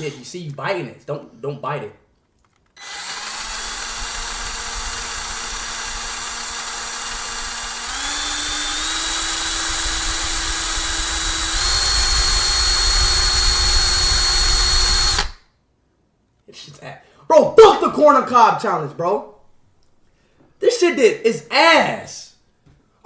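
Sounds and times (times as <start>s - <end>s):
power drill motor whining: 2.8s - 15.4s.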